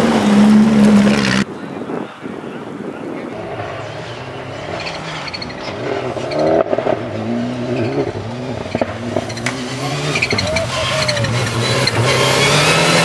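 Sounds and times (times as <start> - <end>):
rally car engine revving: 0.0 - 1.5, 3.3 - 13.0.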